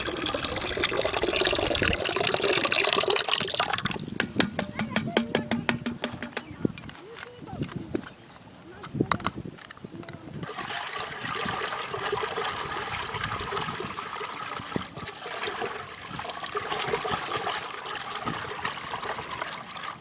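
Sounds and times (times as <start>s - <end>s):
water running and trickling: 0.0s - 5.9s, 10.4s - 20.0s.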